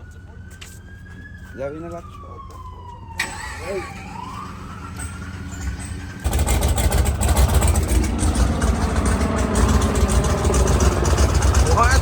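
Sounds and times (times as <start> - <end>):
faint rising siren tone: 0.0 - 6.2
engine exhaust rumble: 3.4 - 12.0.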